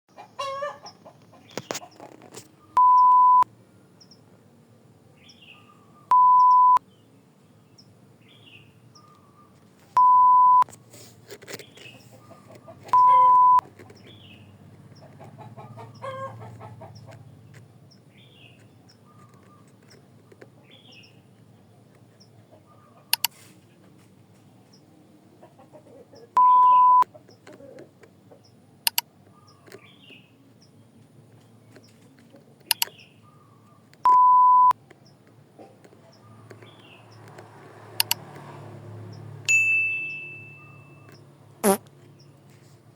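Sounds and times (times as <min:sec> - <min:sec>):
electronic beep: 0:02.8 - 0:03.4, 0:06.1 - 0:06.8, 0:10.0 - 0:10.6, 0:13.0 - 0:13.6, 0:26.4 - 0:27.0, 0:34.1 - 0:34.7
faint bird chirps: 0:05.2 - 0:07.1, 0:11.6 - 0:17.1, 0:26.1 - 0:30.8, 0:40.0 - 0:42.4
sharp clicks: 0:23.1 - 0:23.4, 0:28.8 - 0:29.8, 0:32.6 - 0:33.0, 0:34.0 - 0:38.4.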